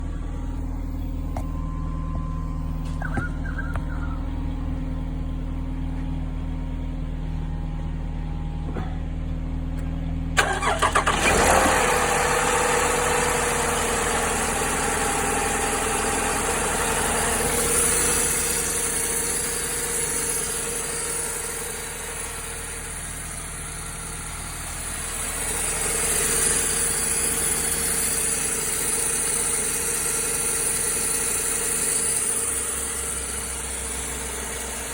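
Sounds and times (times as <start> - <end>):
steady low hum: 0.0 - 10.4
engine idling with rattle: 0.0 - 34.9
car engine cranking and starting: 9.8 - 34.9.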